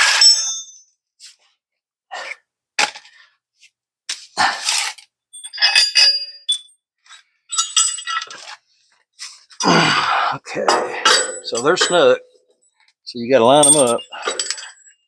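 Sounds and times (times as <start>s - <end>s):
wrench clinking on metal: 0.1s - 0.9s, 5.4s - 6.7s, 7.5s - 8.4s, 10.6s - 12.3s, 13.5s - 15.0s.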